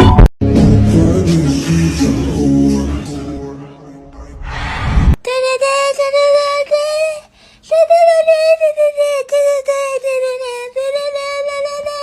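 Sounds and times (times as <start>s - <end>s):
high-pitched voice singing: 5.2s - 12.0s.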